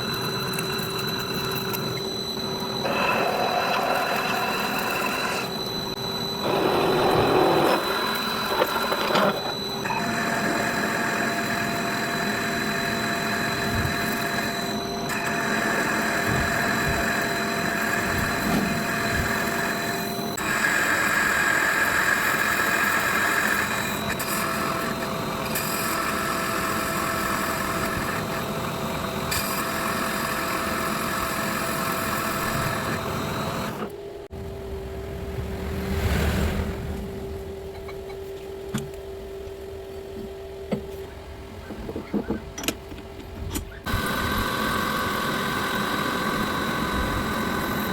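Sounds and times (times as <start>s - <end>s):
power tool motor whirring: 43.8s - 47.9s.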